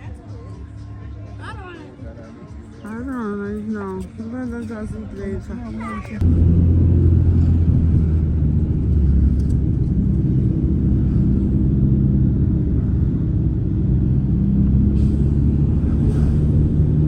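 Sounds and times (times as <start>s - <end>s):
car interior rumble and hum: 3.8s - 17.0s.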